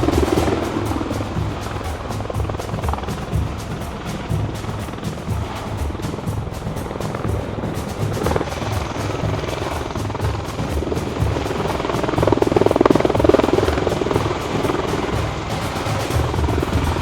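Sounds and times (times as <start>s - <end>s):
background music: 0.0s - 17.0s
helicopter rotor chop: 0.0s - 17.0s.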